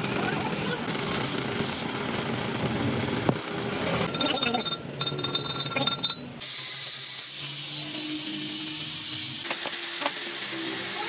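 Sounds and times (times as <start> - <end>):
metal tools clinking: 4.0 - 6.3.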